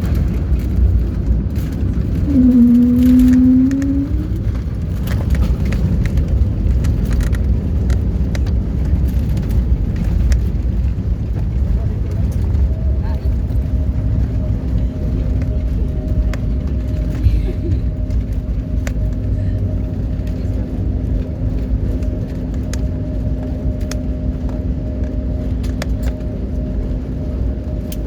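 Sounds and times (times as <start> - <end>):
low engine rumble: 0.0 - 28.0.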